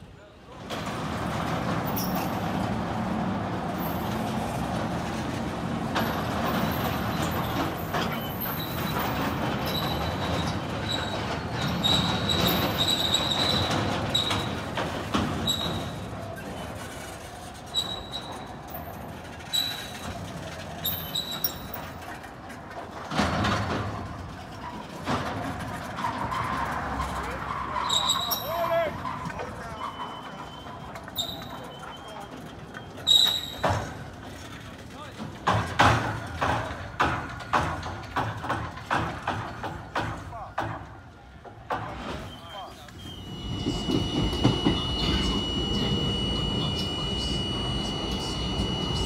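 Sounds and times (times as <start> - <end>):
subway train rumbling on track: 0.0 - 49.0
high-pitched wheel squeals: 1.8 - 2.5, 6.0 - 22.1, 26.0 - 34.1, 42.2 - 49.0
sharp clicks and knocks: 35.2 - 42.1.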